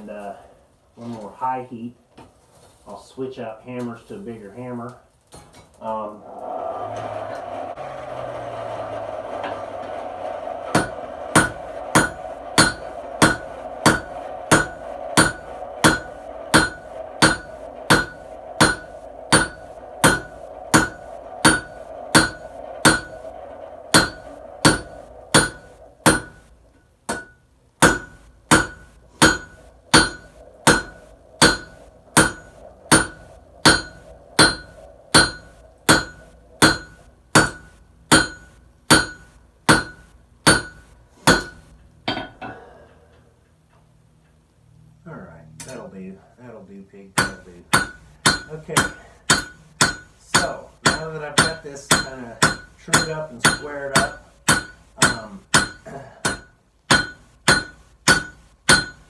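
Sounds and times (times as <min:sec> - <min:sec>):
steady hum: 0:05.4 - 0:59.0
hammer striking metal on anvil: 0:09.7 - 0:26.5, 0:27.1 - 0:42.6, 0:47.2 - 0:59.0.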